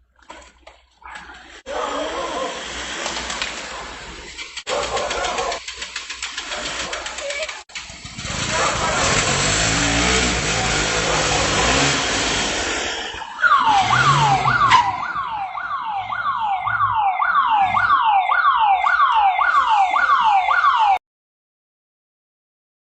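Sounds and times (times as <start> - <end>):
vehicle engine: 1.8 - 18.0
electronic siren sweeping downward: 9.0 - 21.0.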